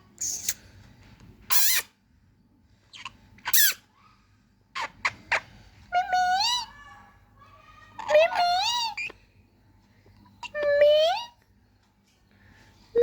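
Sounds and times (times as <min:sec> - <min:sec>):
parrot making shrill calls: 0:01.5 - 0:01.9, 0:03.0 - 0:03.8.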